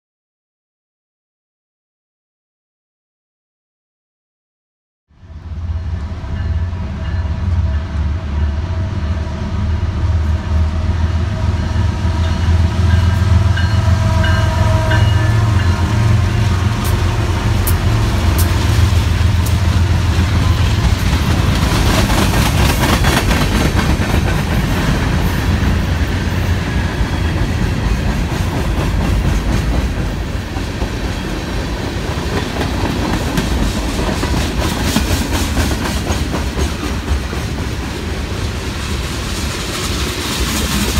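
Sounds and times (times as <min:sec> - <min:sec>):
diesel locomotive engine rumble: 0:05.1 - 0:40.9
train wheels clickety-clack: 0:16.7 - 0:40.9.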